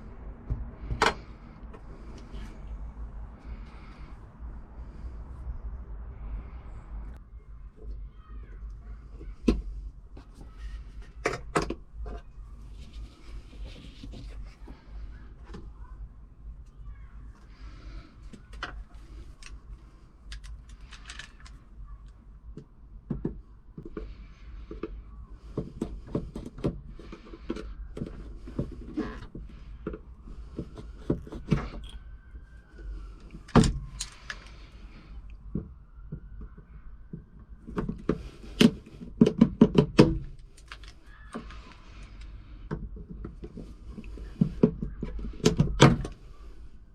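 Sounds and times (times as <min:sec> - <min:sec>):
knocks clunks and clicks: 0:00.4 - 0:02.3, 0:22.5 - 0:32.1, 0:32.8 - 0:46.3.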